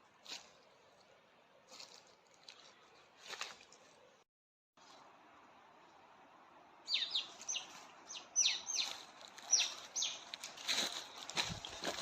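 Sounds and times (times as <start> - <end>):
bird chirping: 6.8 - 10.4.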